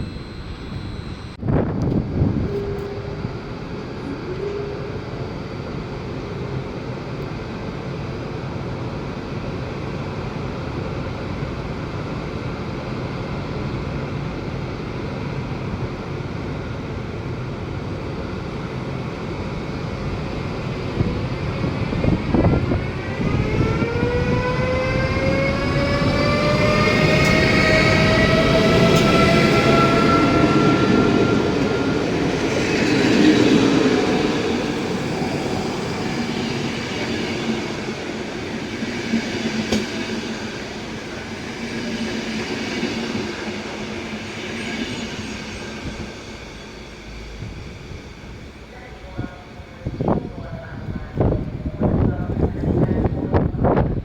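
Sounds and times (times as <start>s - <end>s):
motor whine rising in pitch: 0.0s - 5.0s, 22.6s - 36.1s
electric train rumble: 0.0s - 54.0s.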